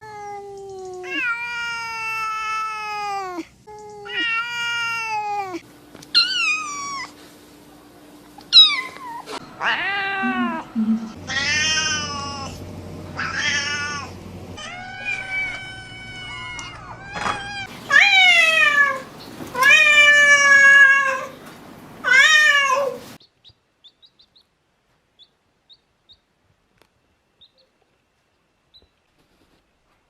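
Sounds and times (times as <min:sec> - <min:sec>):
cats meowing: 0:00.0 - 0:07.2, 0:08.5 - 0:21.4, 0:22.0 - 0:23.0.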